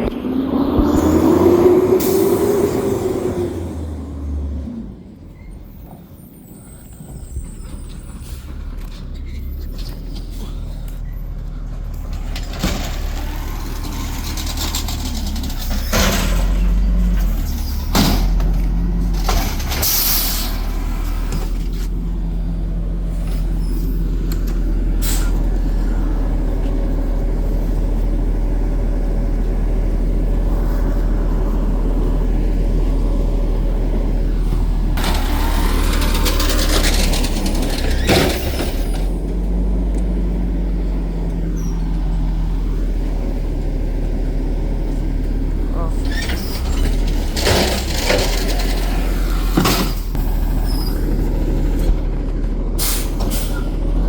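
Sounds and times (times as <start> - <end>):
diesel engine running: 0.0 - 54.0
air brake hisses: 52.8 - 53.7.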